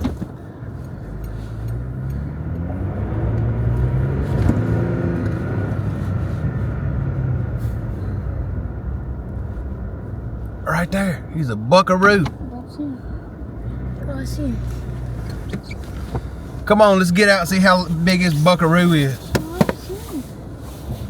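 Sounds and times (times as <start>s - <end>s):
truck engine from inside cab: 0.0s - 21.0s.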